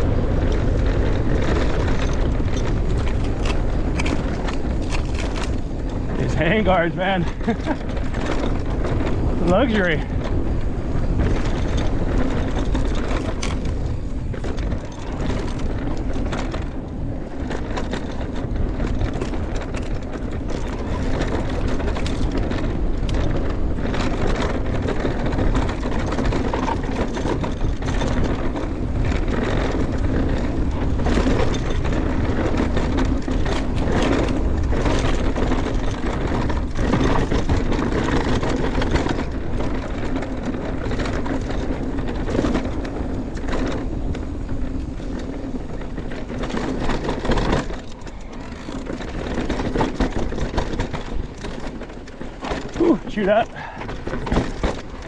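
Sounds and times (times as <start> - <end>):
bike clattering over bumps: 0.0 - 55.0
tyres rolling over dirt and rocks: 0.0 - 55.0
wind rush on microphone: 0.0 - 55.0.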